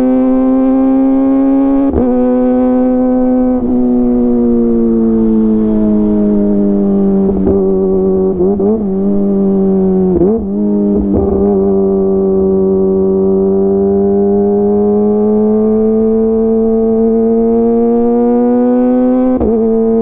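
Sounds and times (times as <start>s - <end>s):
motorcycle engine revving high: 0.0s - 20.0s.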